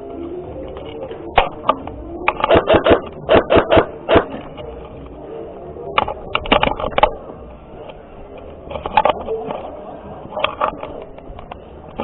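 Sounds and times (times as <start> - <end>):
airsoft guns firing: 2.3 - 4.4.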